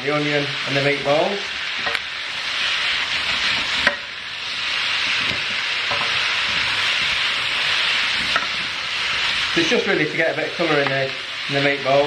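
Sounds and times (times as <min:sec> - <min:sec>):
food sizzling in a hot pan: 0:00.0 - 0:12.0.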